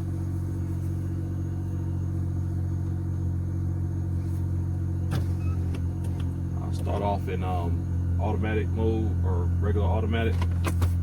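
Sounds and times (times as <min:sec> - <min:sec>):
car engine idling: 0:05.8 - 0:11.0.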